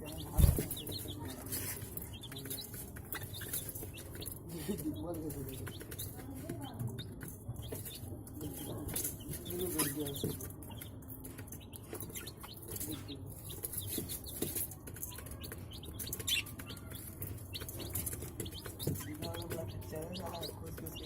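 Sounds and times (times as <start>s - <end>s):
budgerigars chirping: 2.1s - 5.9s, 11.6s - 14.4s, 15.4s - 21.0s.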